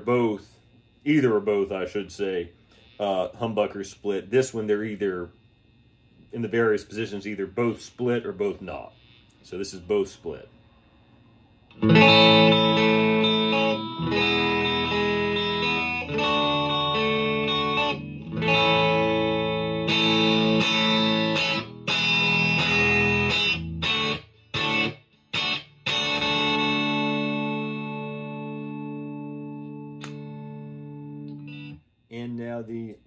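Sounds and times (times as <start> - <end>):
electric guitar chords: 11.7 - 31.9.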